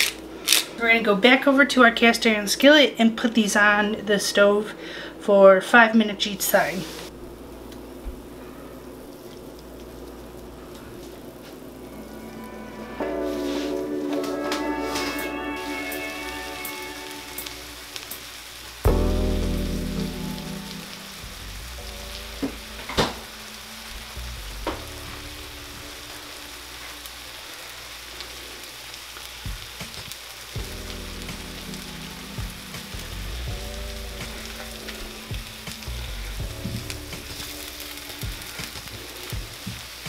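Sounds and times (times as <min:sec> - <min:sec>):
chicken sizzling in a skillet: 0:06.4 - 0:40.0
background music: 0:11.2 - 0:27.9, 0:29.4 - 0:40.0.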